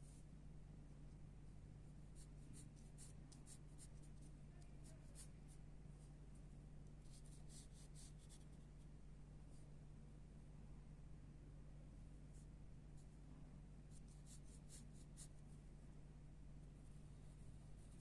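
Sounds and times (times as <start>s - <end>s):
steady low hum: 0.0s - 18.0s
pencil scratching on paper: 2.2s - 5.3s, 7.0s - 8.6s, 13.9s - 15.4s, 17.0s - 18.0s.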